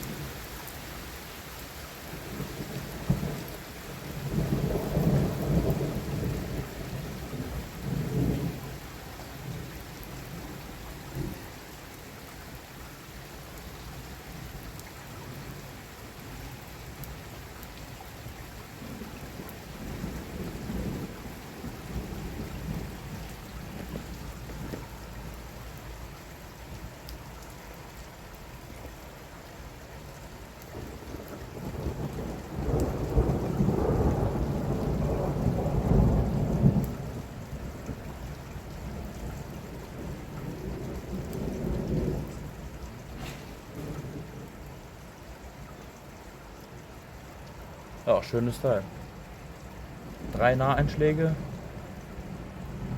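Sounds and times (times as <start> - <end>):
heavy rain: 0.0 - 52.9
rolling thunder: 2.2 - 8.8, 18.8 - 25.4, 30.7 - 44.8, 50.0 - 52.9.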